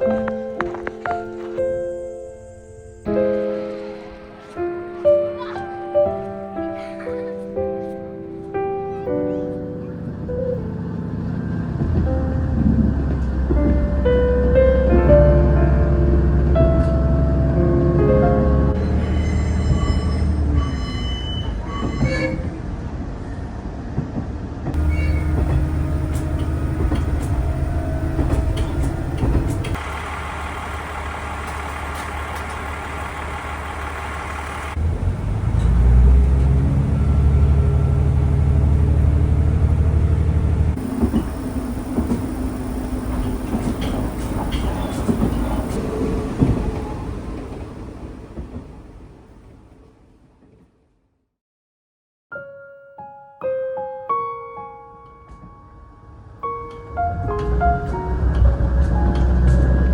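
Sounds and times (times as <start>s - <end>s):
train running rumble: 10.1s - 23.0s, 23.8s - 49.7s, 57.3s - 59.9s.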